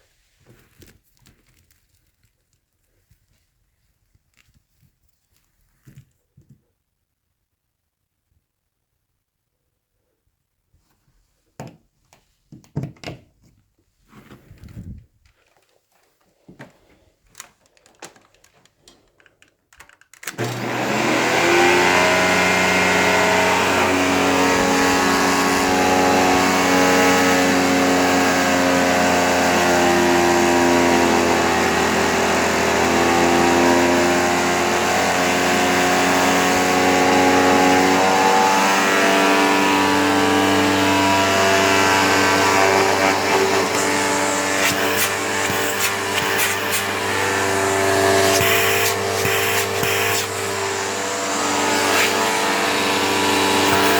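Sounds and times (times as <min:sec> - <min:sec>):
upright vacuum high whine: 0:20.3 - 0:53.9.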